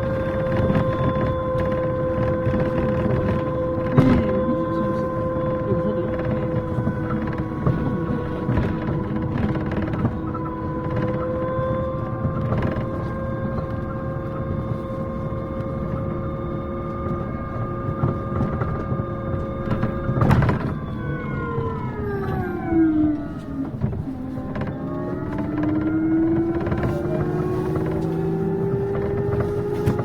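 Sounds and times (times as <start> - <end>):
bus drive whine: 0.0 - 30.0
road rumble: 0.0 - 30.0.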